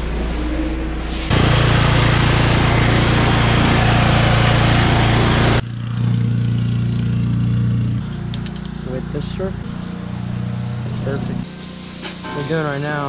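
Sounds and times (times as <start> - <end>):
pressure washer engine running: 0.0 - 5.6, 6.7 - 13.0
high-pressure water jet hissing: 9.9 - 13.0.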